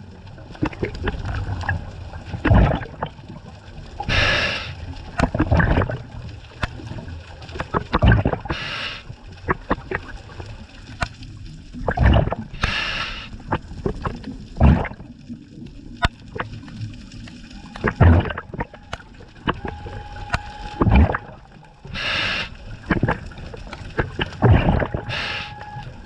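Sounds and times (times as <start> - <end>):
gurgling exhaled bubbles: 0.0 - 26.0
hissing regulator inhales: 4.1 - 4.8, 8.5 - 9.1, 12.6 - 13.4, 21.9 - 22.6, 25.0 - 25.8.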